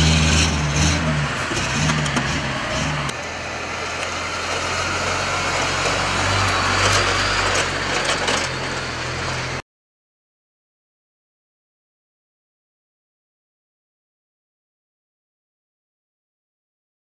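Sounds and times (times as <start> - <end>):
vehicle engine and road noise: 0.0 - 9.6.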